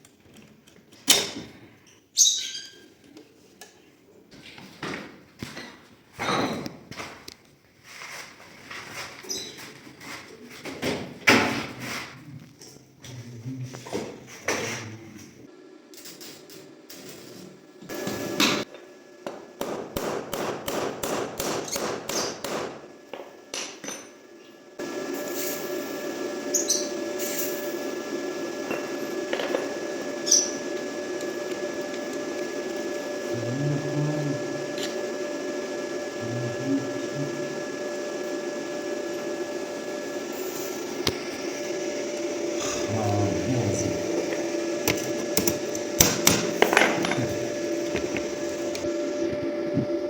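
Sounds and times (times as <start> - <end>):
machine hum: 12.2 - 50.0.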